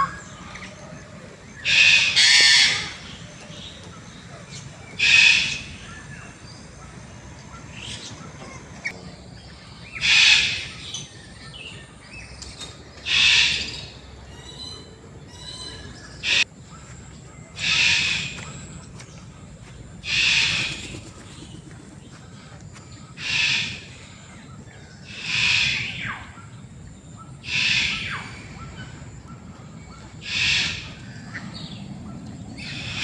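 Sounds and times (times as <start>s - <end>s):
large bird harsh call: 1.6s - 3.2s, 4.9s - 6.0s, 9.8s - 11.1s, 17.6s - 18.4s, 23.1s - 24.0s, 27.4s - 28.9s, 30.2s - 31.7s.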